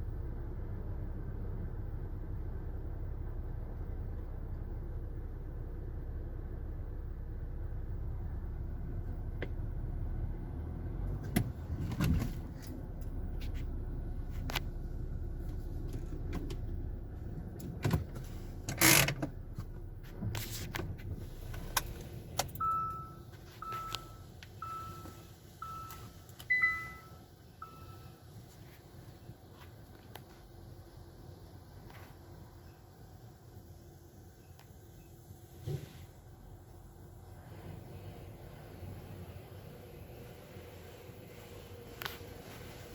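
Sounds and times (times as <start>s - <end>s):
car engine idling: 0.0s - 42.9s
clicks and knocks inside car: 11.2s - 12.8s, 17.5s - 21.1s
car warning chime beeping: 22.4s - 28.3s.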